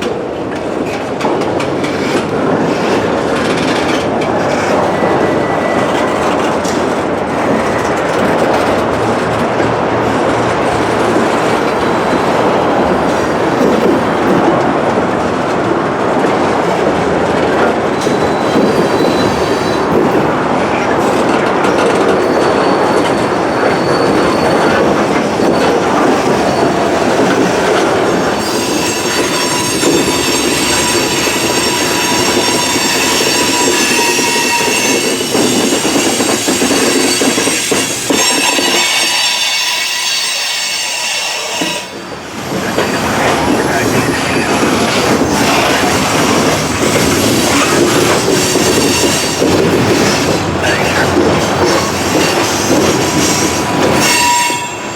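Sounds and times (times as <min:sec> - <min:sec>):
freight train cars rolling: 0:00.0 - 0:54.9
high wheel squeal: 0:04.4 - 0:06.7, 0:17.9 - 0:19.9, 0:21.9 - 0:54.9.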